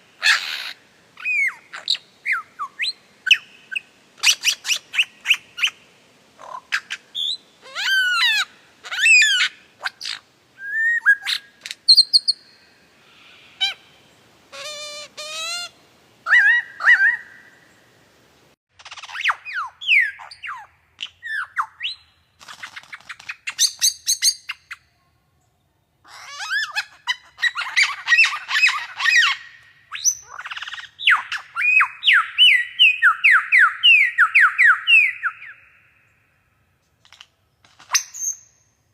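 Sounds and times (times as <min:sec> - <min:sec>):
birds chirping and calling: 0:00.2 - 0:05.8, 0:06.4 - 0:13.9, 0:16.3 - 0:17.5, 0:26.1 - 0:35.8.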